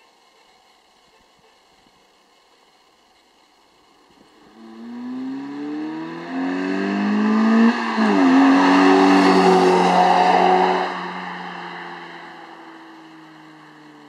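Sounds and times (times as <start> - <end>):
car engine accelerating: 4.2 - 14.0.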